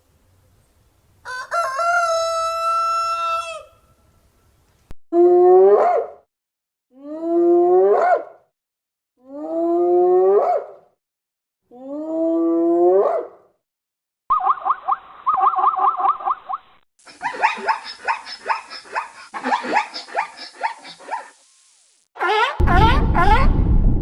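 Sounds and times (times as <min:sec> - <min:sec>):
rooster crowing: 0:01.2 - 0:04.0.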